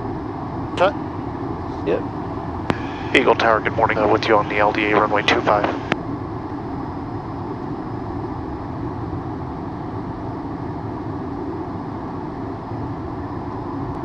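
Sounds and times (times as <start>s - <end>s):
jet cockpit airflow and engine: 0.1s - 8.8s.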